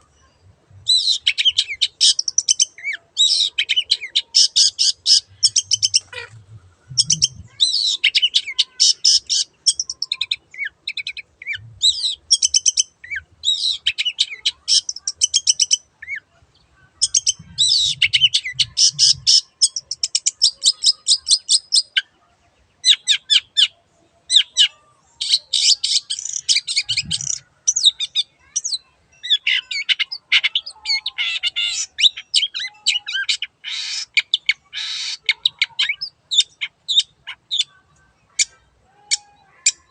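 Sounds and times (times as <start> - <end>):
bird singing chattering notes: 0.9 - 16.2, 17.0 - 22.0.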